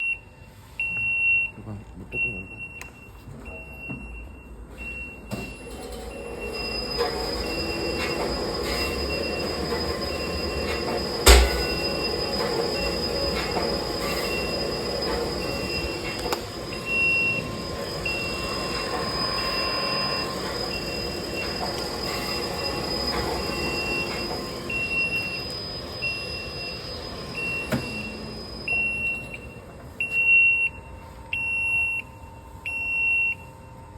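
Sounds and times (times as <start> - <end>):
high machine whine: 5.2 - 30.0
machine hum: 5.6 - 27.4
sharp knock: 11.3 - 11.8
electronic beeper: 11.3 - 16.2.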